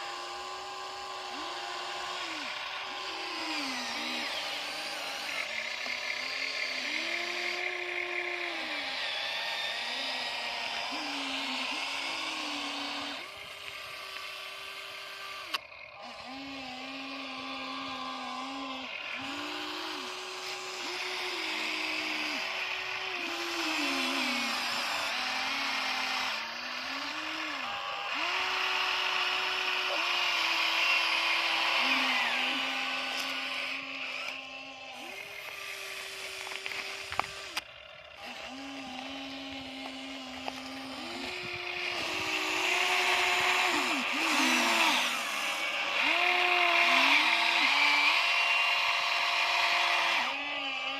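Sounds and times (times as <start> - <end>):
small electric motors whining: 0.0 - 50.9.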